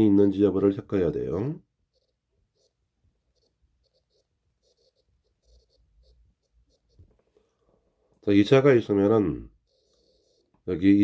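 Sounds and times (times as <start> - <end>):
pen writing strokes: 1.8 - 7.8, 8.9 - 10.7.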